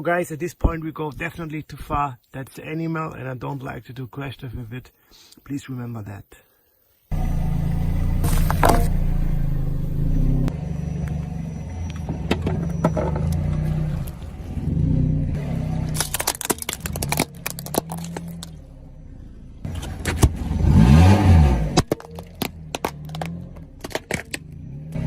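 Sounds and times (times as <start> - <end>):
engine revving: 7.1 - 16.2, 18.0 - 21.9, 24.4 - 25.0
vehicle engine running low: 7.1 - 16.2
sharp cracks and clicks: 15.9 - 18.6.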